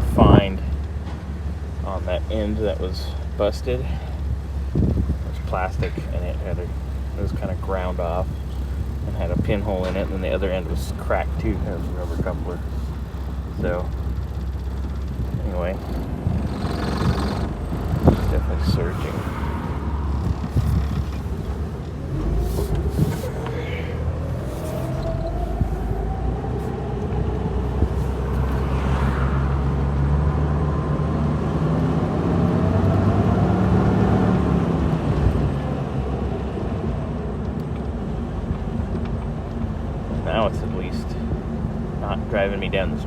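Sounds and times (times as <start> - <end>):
car engine surging: 0.0 - 37.8
whine rising in pitch: 14.7 - 30.1.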